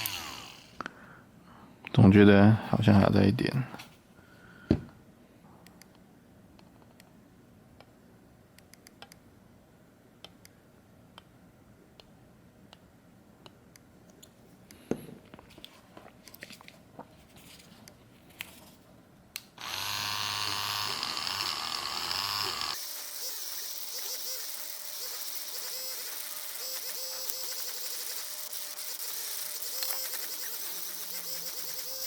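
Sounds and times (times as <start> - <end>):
electric polishing tool running: 0.0 - 0.8, 19.6 - 32.0.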